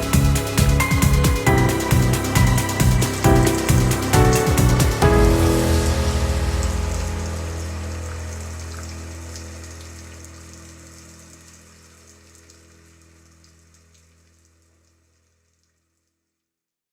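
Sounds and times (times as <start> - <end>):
low sustained chord: 0.0 - 12.0
rain pattering: 0.0 - 15.9.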